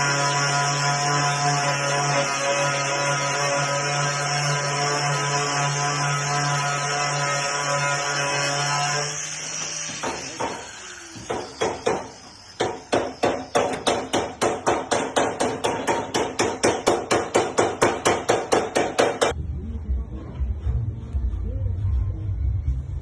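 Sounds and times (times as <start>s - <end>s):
hammer striking sheet metal: 9.6s - 19.4s.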